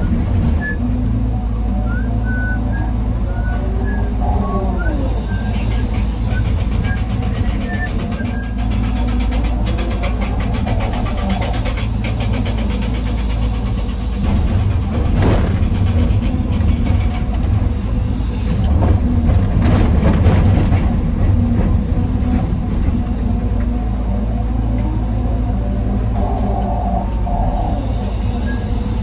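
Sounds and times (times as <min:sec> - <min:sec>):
diesel excavator running: 0:00.0 - 0:29.0.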